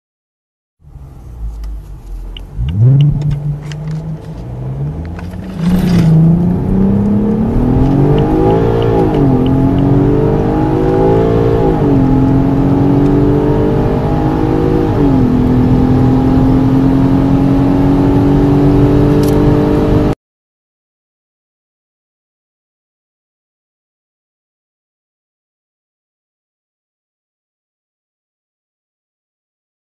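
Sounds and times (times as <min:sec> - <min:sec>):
car engine accelerating hard: 0:00.8 - 0:20.2.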